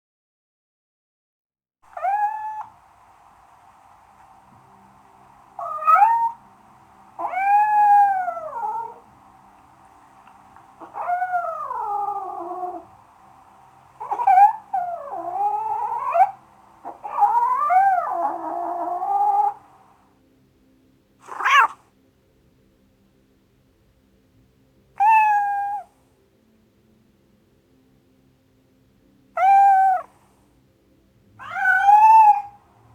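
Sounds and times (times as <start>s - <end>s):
cat meowing: 1.9s - 2.7s, 5.6s - 6.4s, 7.2s - 9.1s, 10.8s - 12.9s, 14.0s - 19.6s, 21.2s - 21.8s, 25.0s - 25.9s, 29.4s - 30.1s, 31.4s - 32.6s.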